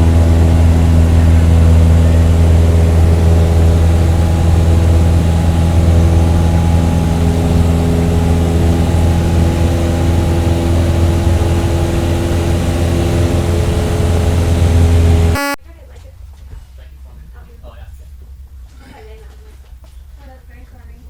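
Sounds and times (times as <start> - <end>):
heavy engine idling: 0.0 - 15.6.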